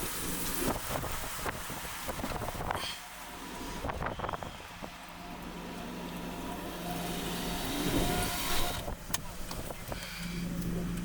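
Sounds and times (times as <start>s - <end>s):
vehicle engine approaching: 3.2s - 11.0s.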